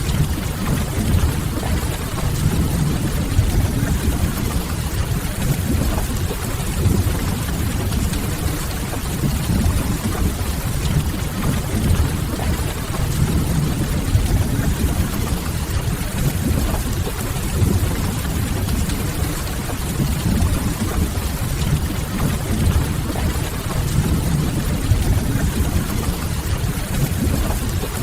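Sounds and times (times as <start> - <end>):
steady rain: 0.0 - 28.0.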